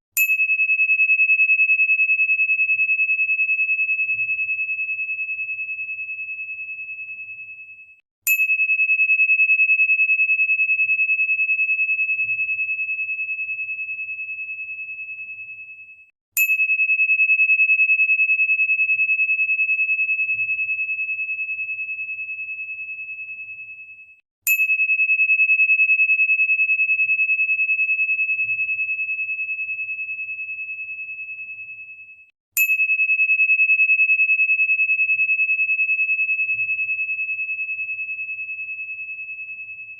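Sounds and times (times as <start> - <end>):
high pure ringing tone: 0.2 - 39.9.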